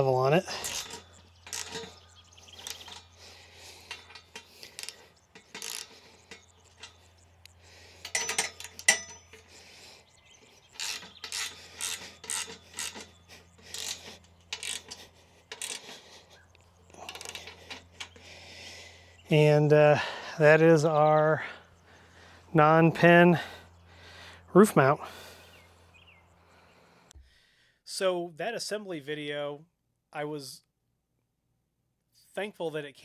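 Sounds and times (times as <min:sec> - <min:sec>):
metal frame scraping and clicking: 0:00.0 - 0:21.6
steady low hum: 0:00.0 - 0:27.1.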